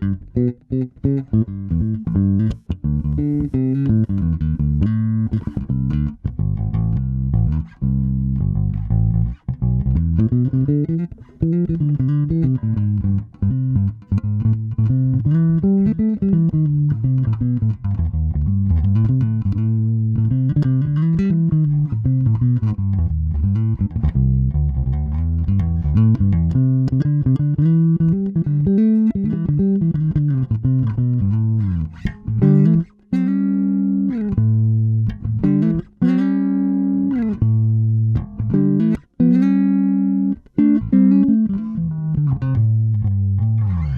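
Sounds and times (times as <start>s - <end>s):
electric bass plucked notes: 0.0s - 43.9s.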